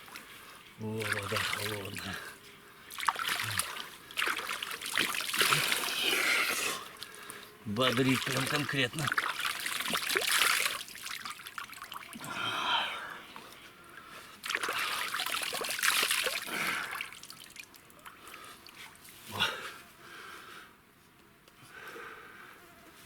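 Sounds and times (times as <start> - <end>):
water splashed onto face: 2.9 - 6.6, 8.0 - 12.3, 14.4 - 17.7.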